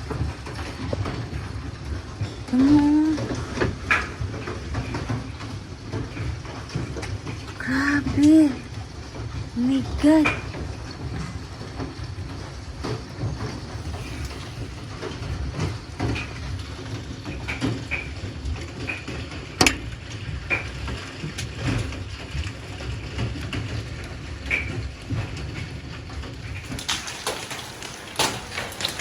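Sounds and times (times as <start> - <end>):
rain and wind rumble: 0.0 - 29.0
hailstones striking hard surfaces: 10.9 - 29.0.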